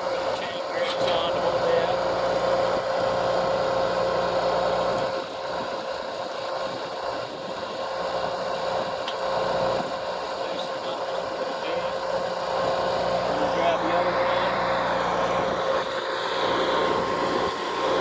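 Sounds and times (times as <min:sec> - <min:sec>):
engine idling: 0:00.0 - 0:18.0
steady whine: 0:06.6 - 0:18.0.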